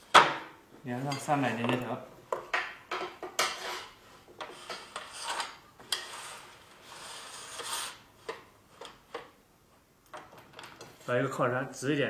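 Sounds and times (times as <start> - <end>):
metal scraping on metal rail: 3.4 - 9.0.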